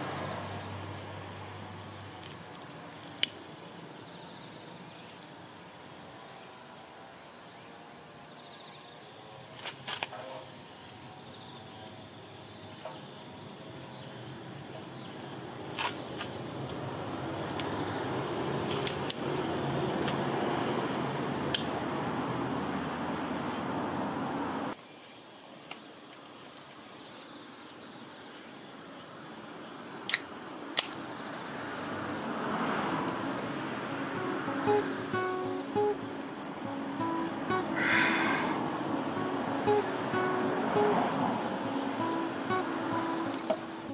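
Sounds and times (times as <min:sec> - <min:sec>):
insects chirping: 0:00.0 - 0:43.9
sharp pops or clicks: 0:21.5 - 0:21.8
rushing noise: 0:32.0 - 0:43.9
constant high whine: 0:33.0 - 0:43.9.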